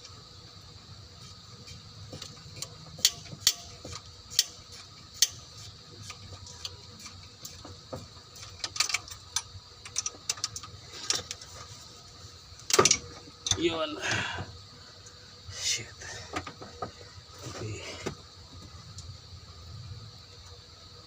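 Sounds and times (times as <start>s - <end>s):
faint steady hum: 0.0s - 21.0s
metallic clicks of hand tools: 2.6s - 7.6s.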